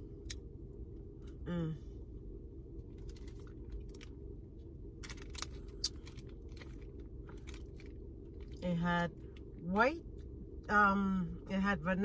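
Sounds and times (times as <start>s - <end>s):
low hum inside a car: 0.0s - 12.0s
crunching and chewing: 2.8s - 4.3s, 5.0s - 8.6s.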